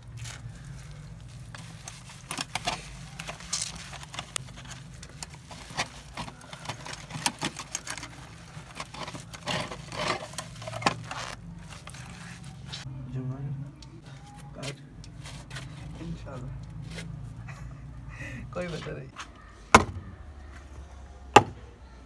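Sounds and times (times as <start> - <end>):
small metal parts clicking: 1.5 - 11.2.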